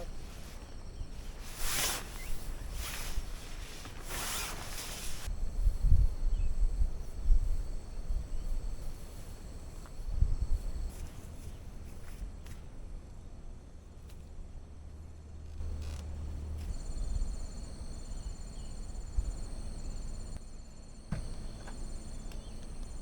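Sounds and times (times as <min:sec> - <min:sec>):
dull thumps: 0:21.1 - 0:21.9.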